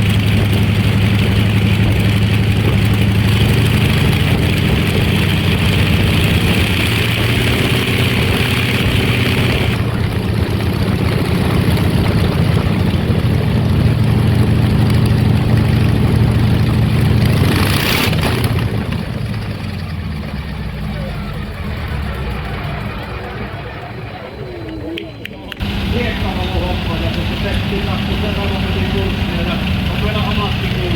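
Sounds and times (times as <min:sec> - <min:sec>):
engine running: 0:00.0 - 0:30.9.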